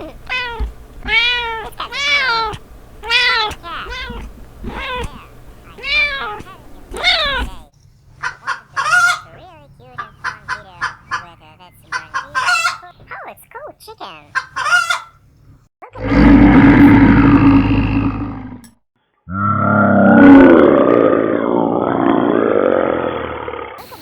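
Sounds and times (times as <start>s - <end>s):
cat meowing: 0.0s - 7.7s
chickens clucking: 0.0s - 15.2s
loud low animal call: 16.0s - 18.7s, 19.3s - 24.0s.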